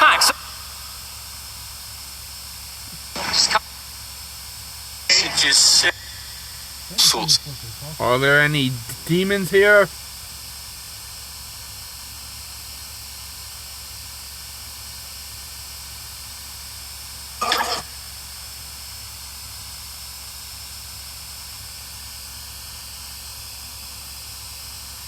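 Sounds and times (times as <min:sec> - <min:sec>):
background hiss: 0:05.1 - 0:10.0.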